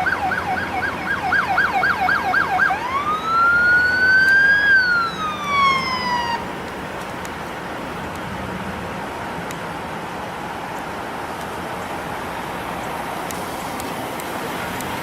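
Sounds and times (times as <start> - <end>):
emergency siren yelp and wail: 0.0 - 6.6.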